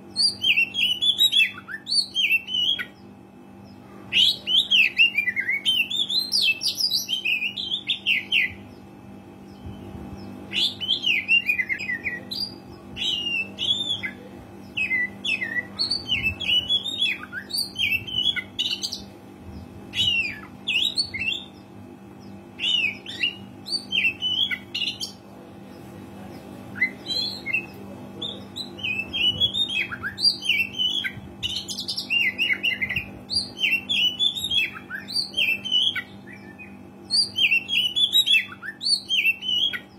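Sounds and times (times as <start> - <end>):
steady low hum: 0.0 - 39.9
bird singing whistles and chirps: 9.5 - 19.0, 22.6 - 25.1, 26.8 - 39.9.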